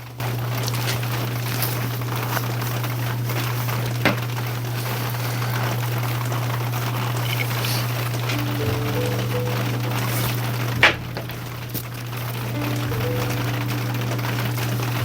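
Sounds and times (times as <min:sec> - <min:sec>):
rain falling: 0:00.0 - 0:15.0
steady low hum: 0:08.2 - 0:15.0.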